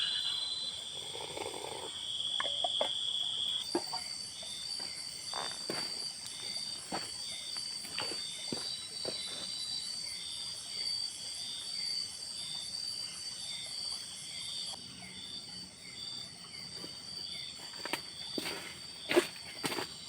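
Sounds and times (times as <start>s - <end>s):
high-pitched insect tones: 0.0s - 11.9s.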